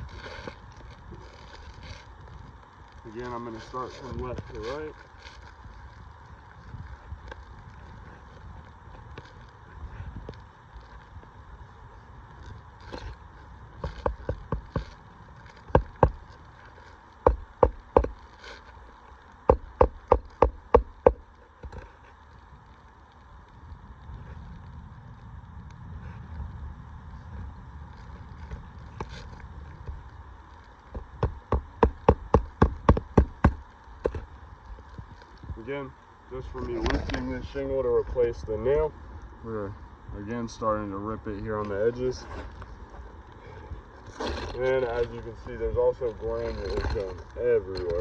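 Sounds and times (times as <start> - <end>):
hammer striking roofing nails: 17.3 - 18.2, 19.5 - 21.2, 31.0 - 33.6.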